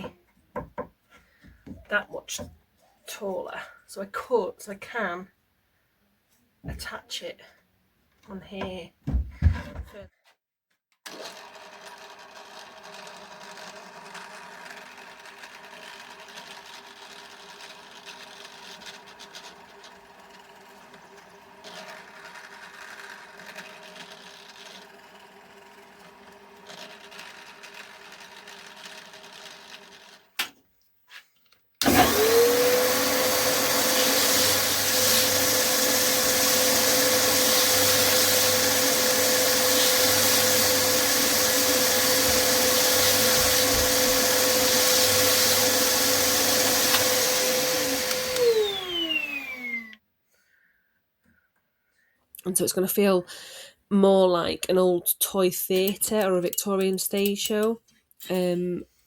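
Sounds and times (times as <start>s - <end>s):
power tool motor whining: 31.8s - 50.0s.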